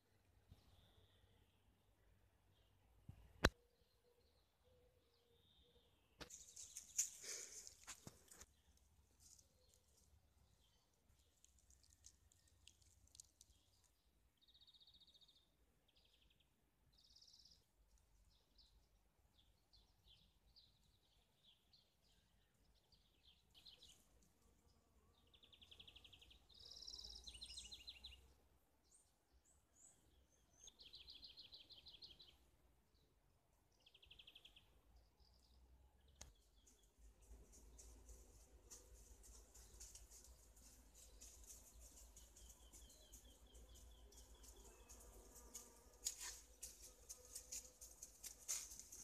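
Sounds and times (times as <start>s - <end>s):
songbirds chirping and trilling: 0.0s - 49.0s.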